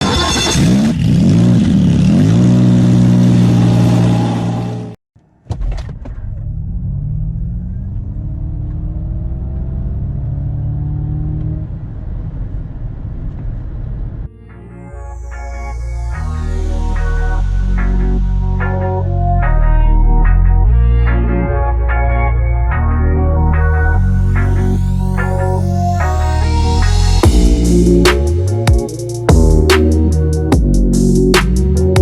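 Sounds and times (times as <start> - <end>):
road noise: 0.0 - 5.0, 6.0 - 14.3, 23.2 - 30.4
music: 14.3 - 32.0.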